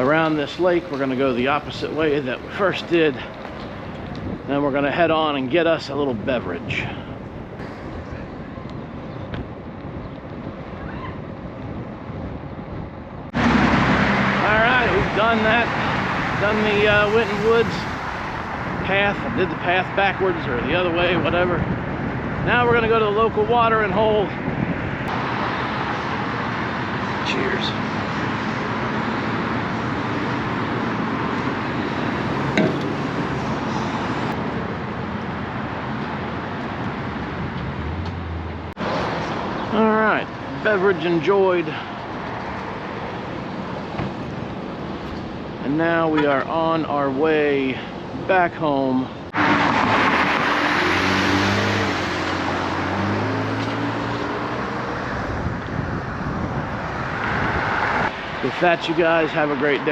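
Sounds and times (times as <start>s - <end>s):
road noise: 0.0s - 59.9s
rushing wind: 0.0s - 59.9s
vehicle engine hum: 24.4s - 40.7s.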